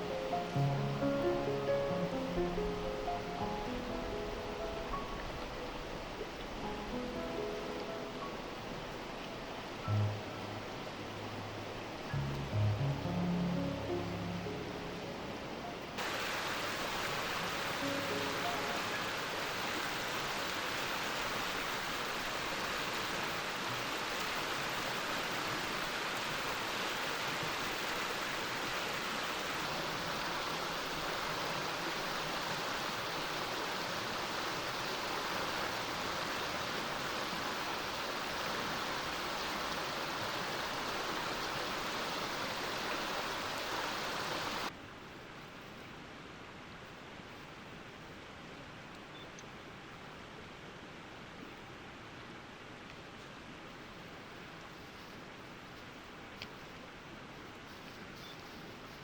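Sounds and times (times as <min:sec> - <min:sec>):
stream rushing over rocks: 0:00.0 - 0:44.8
background hiss: 0:00.0 - 0:59.0.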